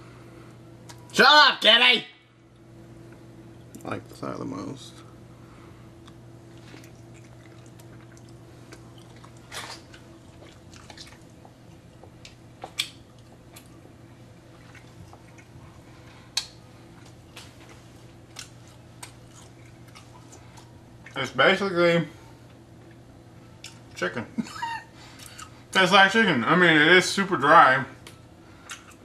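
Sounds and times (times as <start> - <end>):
steady low hum: 0.0 - 29.0
quiet chewing: 6.0 - 21.2, 22.4 - 24.0, 28.0 - 29.0.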